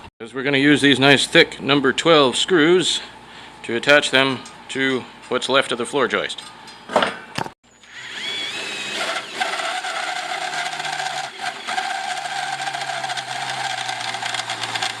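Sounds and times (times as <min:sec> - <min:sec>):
power drill boring into steel: 0:07.8 - 0:15.0.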